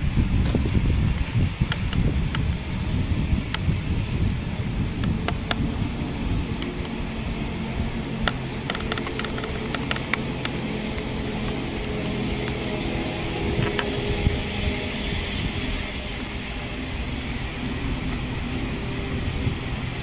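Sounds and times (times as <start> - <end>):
steady hum: 0.0 - 20.0
train rumbling: 0.0 - 20.0
sharp clicks: 5.0 - 12.7.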